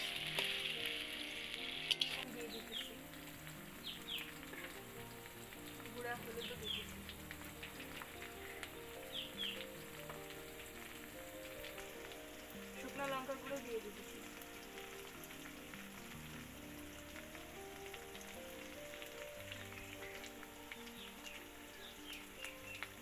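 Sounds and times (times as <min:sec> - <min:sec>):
onions sizzling in hot oil: 0:00.0 - 0:23.0
soft background music: 0:00.0 - 0:23.0
high chirps: 0:08.3 - 0:09.9.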